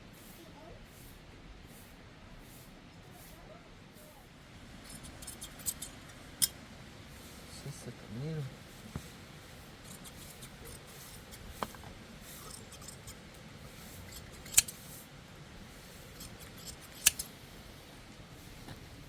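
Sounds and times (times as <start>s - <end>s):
shears snipping wool: 4.8s - 6.7s, 8.7s - 17.7s
shear blades clicking: 4.9s - 6.6s, 9.8s - 13.4s, 14.0s - 14.9s, 16.0s - 17.4s.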